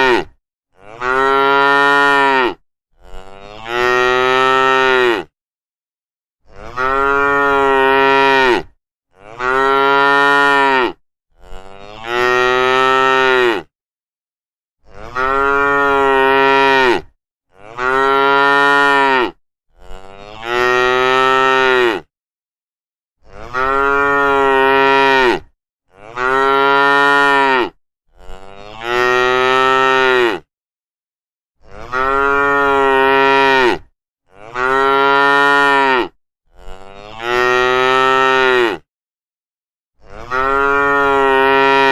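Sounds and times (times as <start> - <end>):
cattle mooing: 0.0 - 5.3, 6.5 - 13.7, 14.9 - 22.1, 23.3 - 30.5, 31.6 - 38.8, 40.1 - 41.9.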